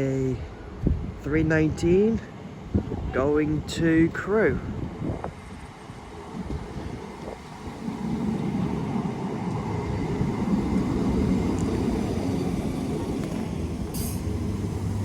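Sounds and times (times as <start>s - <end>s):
train wheels rumbling on rails: 4.6s - 15.0s
brief high hiss: 13.9s - 14.4s.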